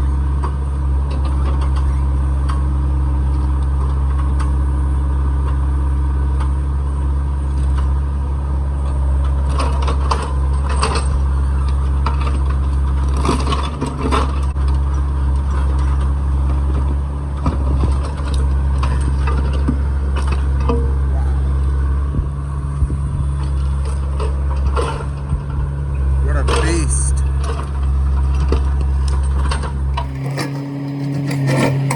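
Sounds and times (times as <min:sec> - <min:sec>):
excavator engine running: 0:00.0 - 0:31.9
rubble clanking and scraping: 0:09.3 - 0:31.9.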